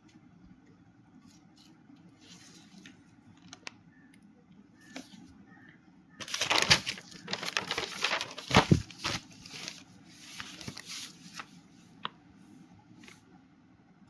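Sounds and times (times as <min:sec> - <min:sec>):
paper rustling and crinkling: 0:06.2 - 0:11.6.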